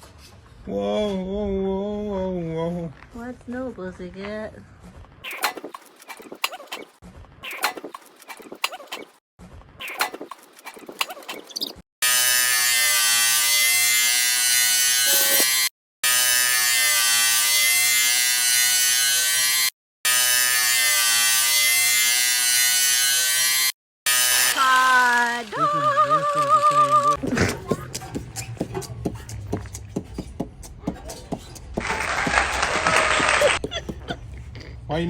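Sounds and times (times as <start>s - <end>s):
power tool buzzing hum: 12.0s - 26.7s.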